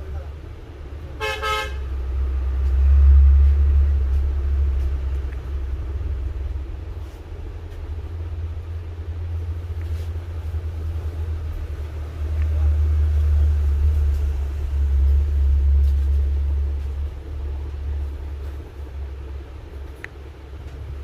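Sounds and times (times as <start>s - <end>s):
road vehicle rumbling: 0.0s - 21.0s.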